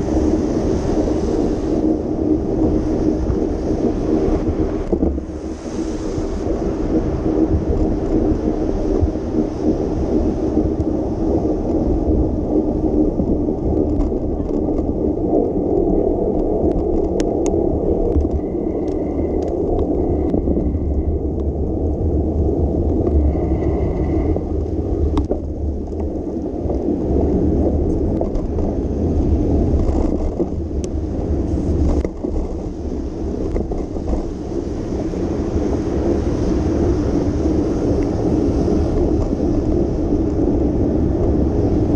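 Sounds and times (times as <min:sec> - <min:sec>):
bicycle tyres rolling on wet pavement: 0:00.0 - 0:41.9
wind on microphone: 0:00.0 - 0:41.9
faint ticks: 0:13.6 - 0:21.5.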